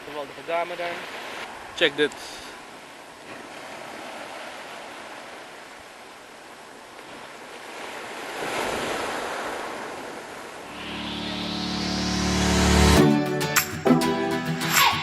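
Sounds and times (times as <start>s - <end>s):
sea waves breaking on beach: 0.0s - 11.6s.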